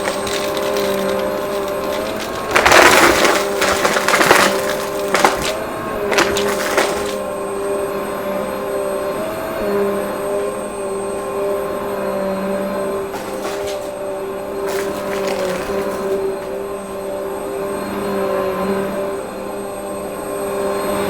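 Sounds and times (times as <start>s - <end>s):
debris crackling in vacuum: 0.0s - 7.3s, 13.1s - 16.8s
vacuum cleaner motor whine: 0.0s - 21.0s.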